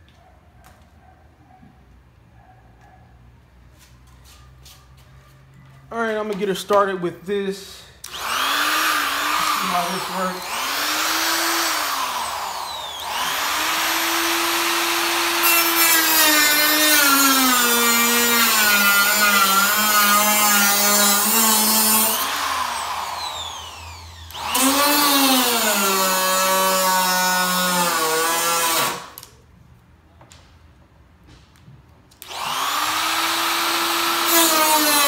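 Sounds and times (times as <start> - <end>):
power tool cutting metal panel: 8.1 - 29.2, 32.2 - 35.0.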